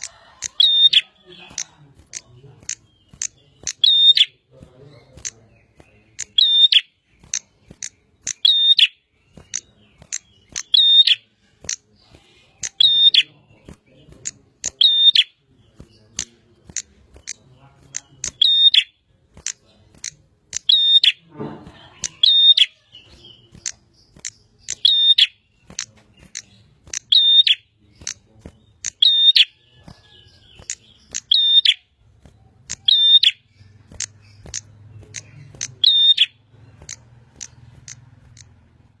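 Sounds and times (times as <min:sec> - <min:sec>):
bird singing sharp call: 0:00.0 - 0:39.0
rapid clicking ticks: 0:01.4 - 0:03.9, 0:07.2 - 0:08.4, 0:09.4 - 0:10.8, 0:15.8 - 0:18.5, 0:19.3 - 0:20.7, 0:23.4 - 0:24.8, 0:25.6 - 0:27.2, 0:28.0 - 0:29.1, 0:33.5 - 0:35.9, 0:36.5 - 0:38.9.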